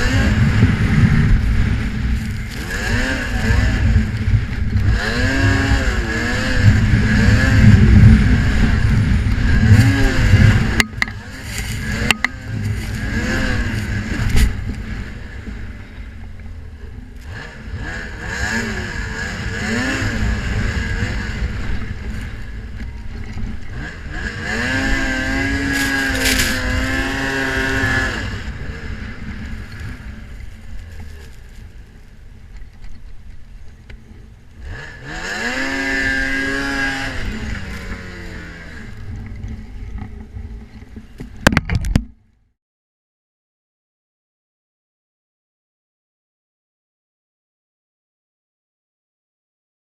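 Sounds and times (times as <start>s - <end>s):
snowmobile engine revving: 0.0s - 16.1s, 16.8s - 31.6s, 34.6s - 40.2s
wind rumble on microphone: 0.0s - 42.4s.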